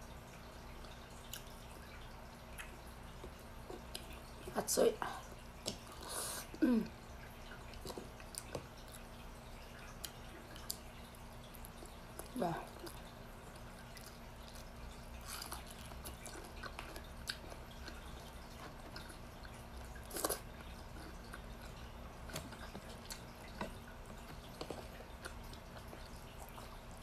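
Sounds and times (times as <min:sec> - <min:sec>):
low steady hum: 0:00.0 - 0:27.0
person chewing: 0:11.7 - 0:26.7.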